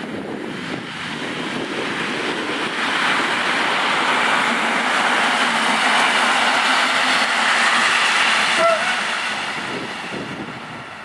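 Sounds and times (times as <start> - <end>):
train wheels rushing on rail: 0.0 - 11.0.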